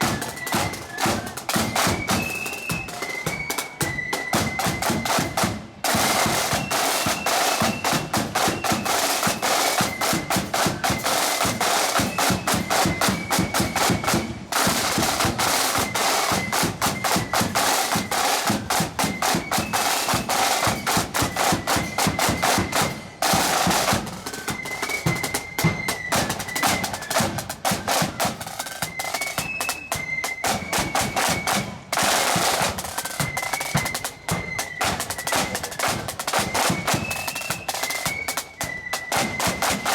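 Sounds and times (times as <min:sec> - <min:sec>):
marching band playing: 0:00.0 - 0:39.9
snare drum rolls: 0:00.0 - 0:39.9.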